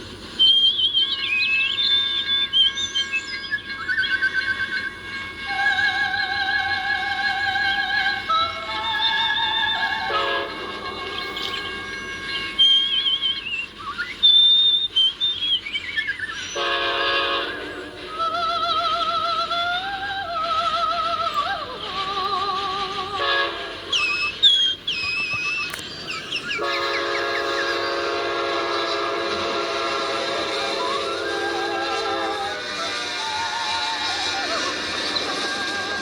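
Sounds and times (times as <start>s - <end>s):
person singing wavering tune: 1.6s - 13.9s, 17.4s - 25.6s, 30.2s - 36.0s
locomotive horn blowing: 2.3s - 13.4s, 16.6s - 18.7s, 22.5s - 24.3s, 26.6s - 36.0s
birds chirping: 11.1s - 29.3s.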